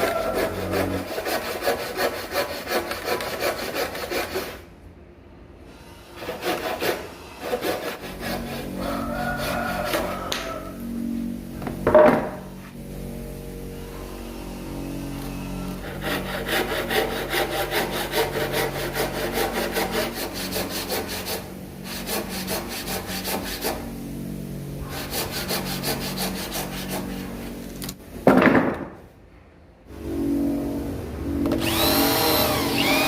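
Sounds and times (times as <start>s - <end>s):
hand saw cutting wood: 0.0s - 4.6s, 6.1s - 10.7s, 14.7s - 27.9s, 31.6s - 33.0s
low hum: 8.0s - 28.2s, 29.2s - 33.0s.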